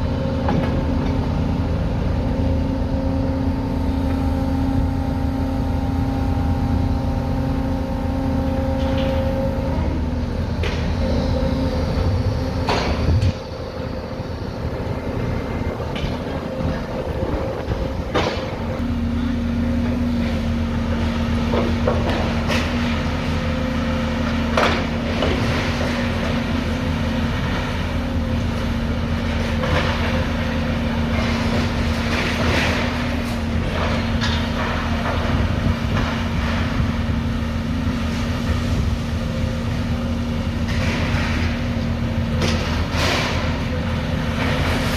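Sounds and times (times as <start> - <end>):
engine drone: 0.0 - 44.9
sharp knocks and clanks: 17.6 - 18.8.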